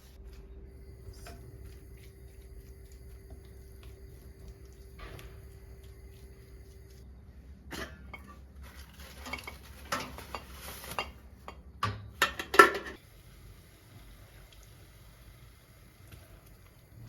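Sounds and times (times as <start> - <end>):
dishes and cutlery clattering: 7.7 - 13.0.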